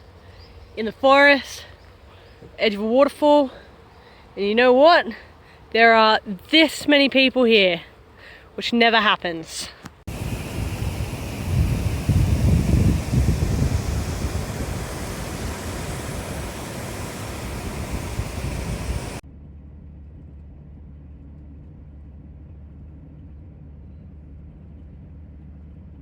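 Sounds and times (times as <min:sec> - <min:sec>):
steady low hum: 0:10.1 - 0:19.2
waterfall roaring: 0:10.1 - 0:19.2.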